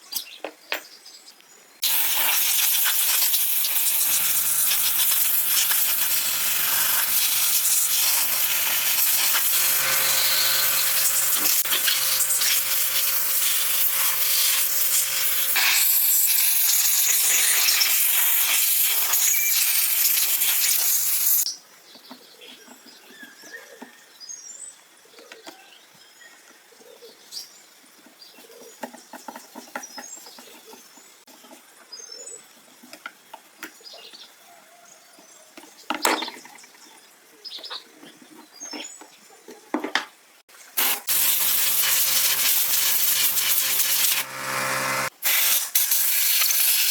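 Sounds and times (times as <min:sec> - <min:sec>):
loud steady hissing: 0:01.8 - 0:21.5, 0:40.8 - 0:46.9.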